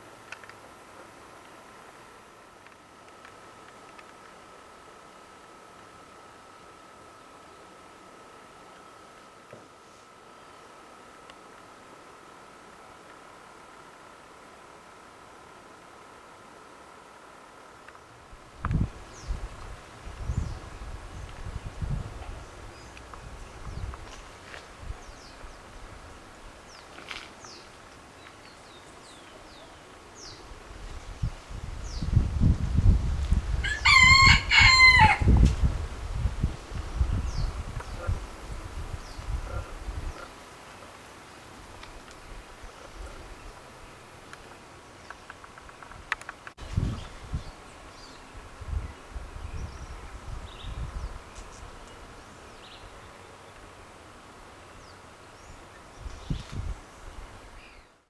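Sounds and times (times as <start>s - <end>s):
faint insect drone: 0.0s - 58.0s
small birds chirping: 26.6s - 32.7s
rooster crowing: 33.6s - 35.4s.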